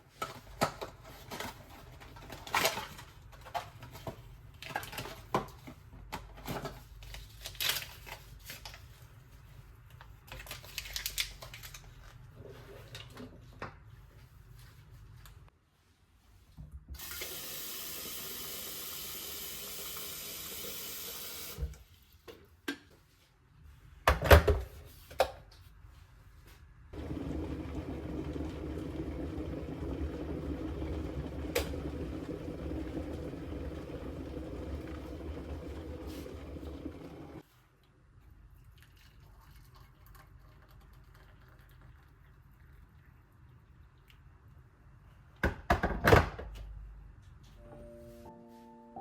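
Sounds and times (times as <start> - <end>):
water running from a tap: 17.0 - 21.6, 27.0 - 37.4.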